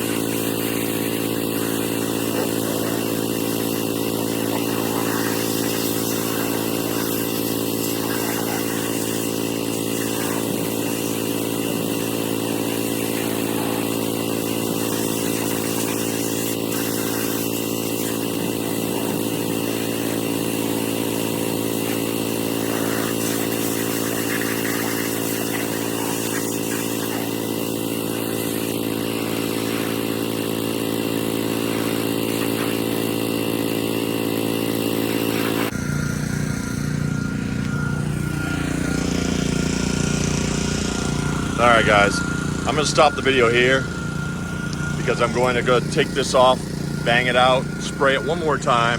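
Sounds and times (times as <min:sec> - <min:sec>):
spray hissing: 0:00.0 - 0:35.7
pressure washer engine running: 0:00.0 - 0:48.9.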